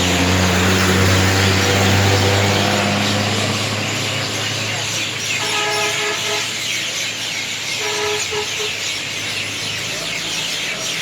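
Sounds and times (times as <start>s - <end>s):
flock of birds chirping: 0.0s - 11.0s
vehicle horn: 5.4s - 6.6s, 7.8s - 8.8s.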